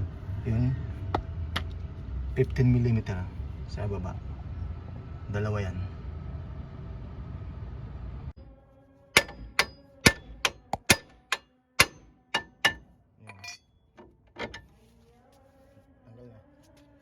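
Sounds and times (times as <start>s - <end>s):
hammer striking metal: 9.2s - 13.7s.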